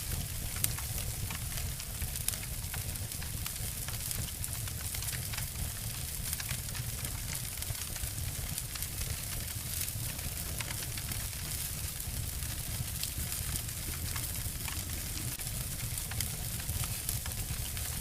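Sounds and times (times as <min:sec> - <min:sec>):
wood fires crackling: 0:00.0 - 0:18.0.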